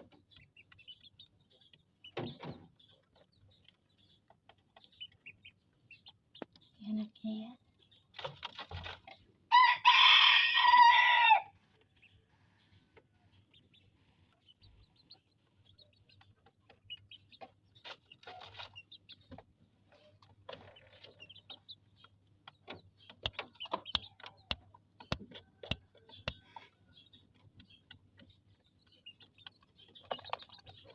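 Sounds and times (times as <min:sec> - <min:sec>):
rooster crowing: 0:09.5 - 0:11.6
faint clicks and taps: 0:20.2 - 0:26.7.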